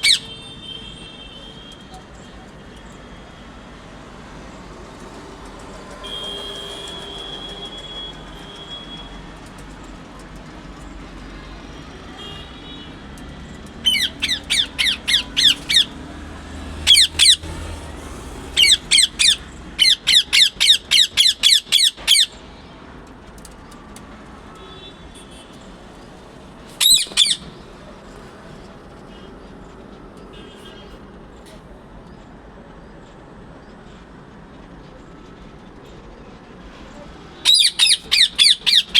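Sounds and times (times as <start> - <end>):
parrot shrill calls: 0.0 - 0.3, 13.8 - 16.0, 16.9 - 17.5, 18.6 - 22.4, 26.8 - 27.5, 37.4 - 38.9.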